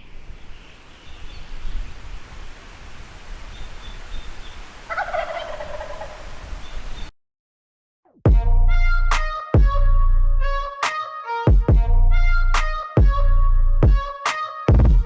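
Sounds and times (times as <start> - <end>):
turkey gobbling: 4.8 - 6.8.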